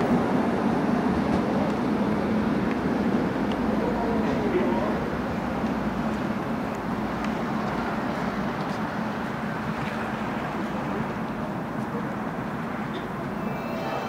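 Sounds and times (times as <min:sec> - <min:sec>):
electric train rumbling: 0:00.0 - 0:08.2, 0:09.0 - 0:14.0.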